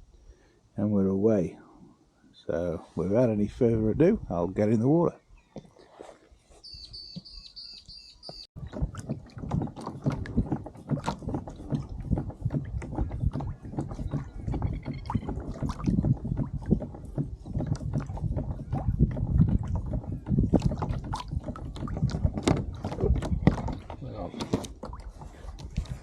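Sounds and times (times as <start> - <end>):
water splashing against kayak hull: 6.7 - 26.0.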